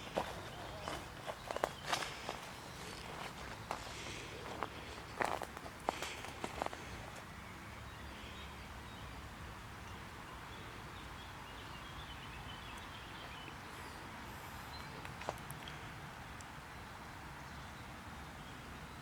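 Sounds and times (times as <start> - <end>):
footsteps: 0.0 - 7.2
low background noise: 0.0 - 19.0.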